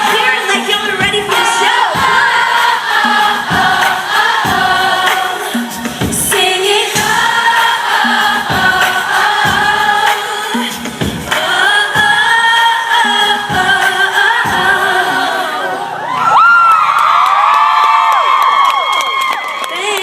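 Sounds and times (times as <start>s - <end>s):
band with drum beat: 0.0s - 14.8s
lead vocal singing: 0.0s - 16.2s.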